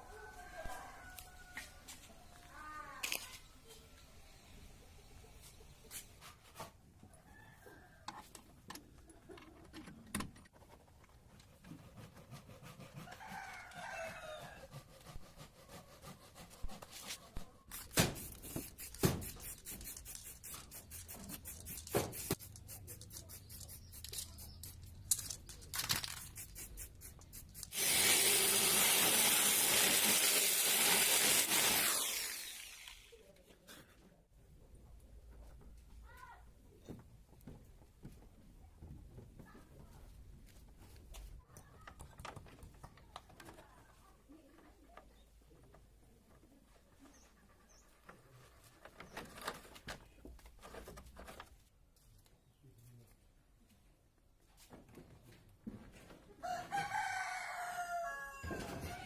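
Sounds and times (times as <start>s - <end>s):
rooster crowing: 0.0s - 2.0s, 13.1s - 14.8s, 56.4s - 59.0s
loud steady hiss: 26.6s - 33.0s.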